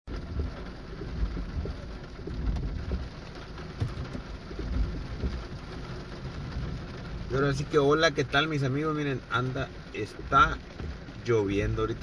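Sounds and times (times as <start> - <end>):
low rumble: 0.1 - 8.3
heavy rain pouring: 0.1 - 12.0
raindrops tapping: 0.1 - 12.0.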